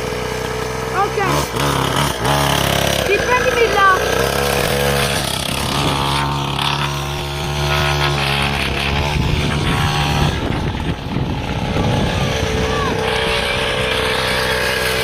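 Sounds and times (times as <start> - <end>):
small motocross bike engine: 0.0 - 15.0.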